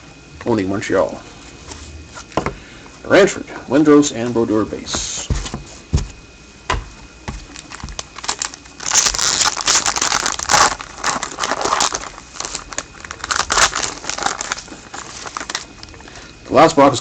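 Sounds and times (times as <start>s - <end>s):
plastic wrapping crinkling and tearing: 7.4s - 16.2s.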